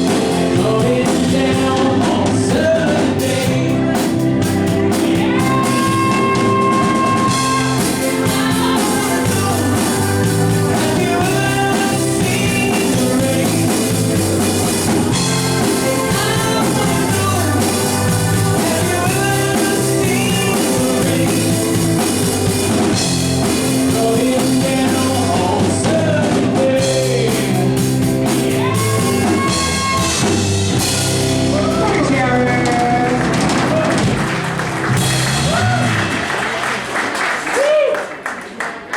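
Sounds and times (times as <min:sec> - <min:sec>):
live rock band playing: 0:00.0 - 0:37.2
wavering lead melody: 0:03.6 - 0:25.4.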